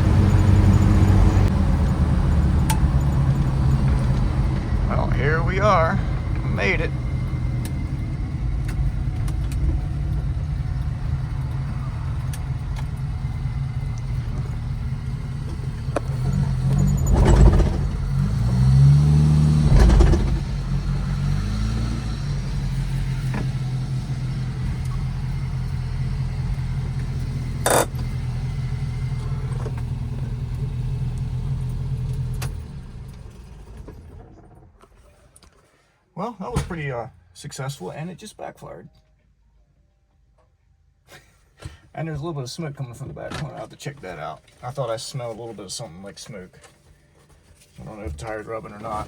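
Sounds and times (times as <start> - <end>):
car engine idling and revving: 0.0 - 35.2, 42.9 - 49.0
engine backfire pop: 15.8 - 20.8.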